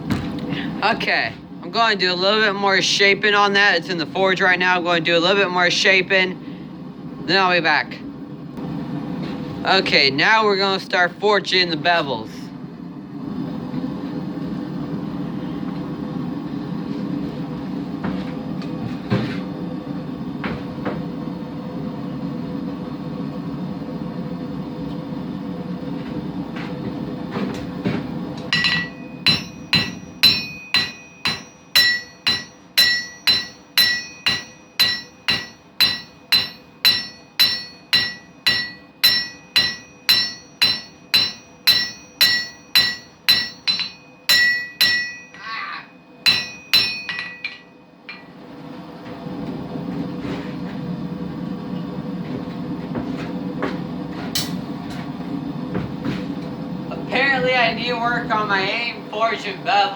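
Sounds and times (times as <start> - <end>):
hammer ringing on anvil: 28.5 - 45.6, 46.2 - 48.3.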